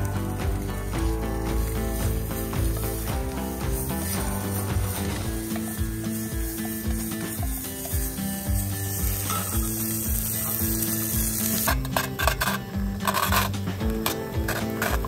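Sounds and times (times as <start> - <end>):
background music with beat: 0.0 - 15.0
food sizzling in a pan: 0.0 - 15.0
irregular scraping: 11.4 - 15.0.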